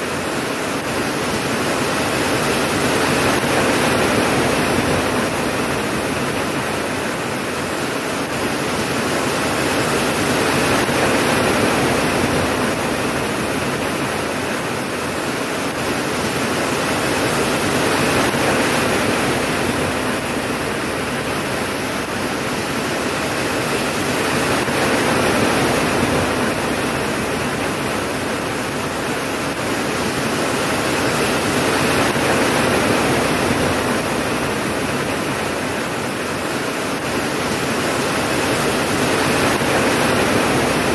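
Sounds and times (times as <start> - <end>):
heavy rain: 0.0 - 40.9.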